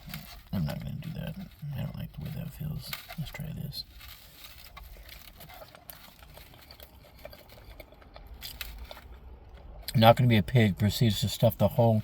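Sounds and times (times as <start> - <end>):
person chewing food: 3.9 - 10.0.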